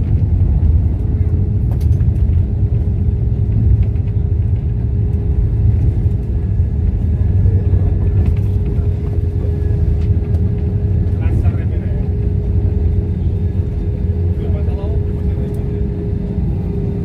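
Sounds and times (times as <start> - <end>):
low rumble of engines and airflow: 0.0 - 17.0.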